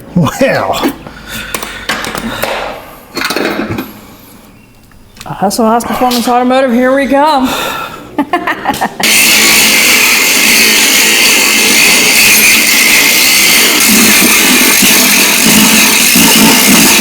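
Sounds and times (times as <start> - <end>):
power tool running loudly: 9.0 - 17.0.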